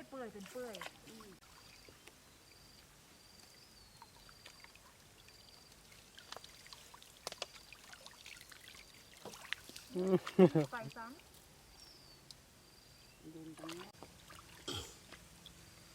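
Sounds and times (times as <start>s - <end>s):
water trickling and pouring: 4.0s - 11.5s, 13.4s - 14.7s
sharp clicks or small splashes: 5.7s - 11.5s.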